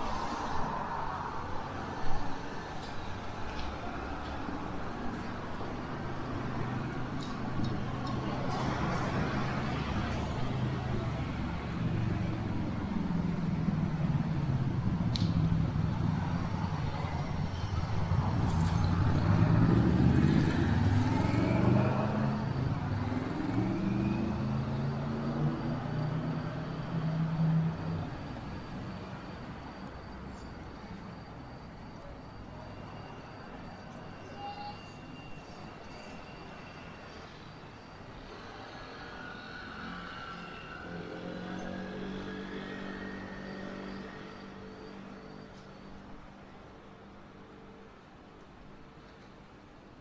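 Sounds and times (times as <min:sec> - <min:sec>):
traffic hum: 0:00.0 - 0:34.3
vehicle engine moving off: 0:08.0 - 0:29.1.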